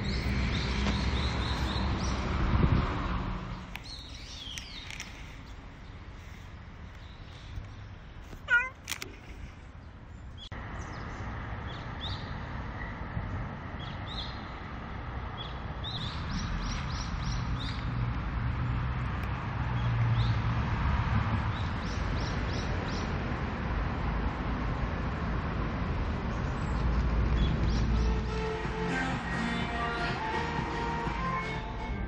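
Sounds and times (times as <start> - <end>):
small birds chirping: 0.0 - 13.0, 15.3 - 18.9, 26.4 - 28.3.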